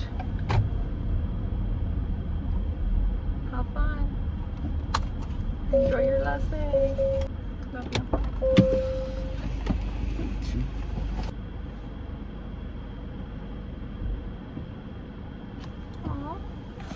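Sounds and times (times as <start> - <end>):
car engine rumbling inside cabin: 0.0 - 16.9.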